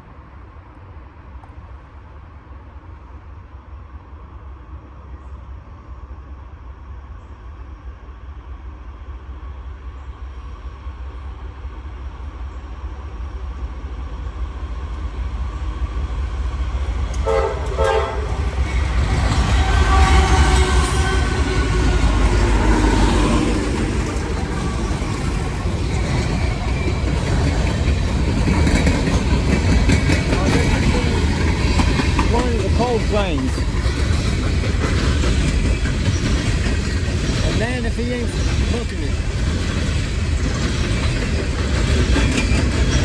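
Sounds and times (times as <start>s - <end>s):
diesel locomotives rumbling: 0.0s - 43.0s
train cars clattering: 16.5s - 43.0s
locomotive horn: 17.2s - 24.8s.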